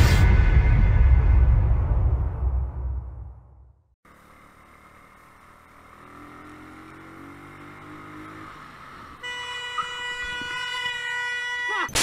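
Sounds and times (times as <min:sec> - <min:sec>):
faint motorcycle engine: 0:04.0 - 0:11.2
wind and road noise: 0:04.1 - 0:12.0
vehicle horn held: 0:09.2 - 0:12.0.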